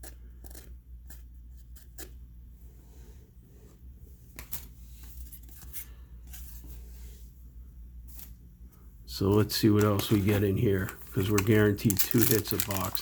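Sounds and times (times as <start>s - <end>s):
steady low hum: 0.0s - 13.0s
cards being flipped: 4.3s - 6.6s, 9.3s - 13.0s.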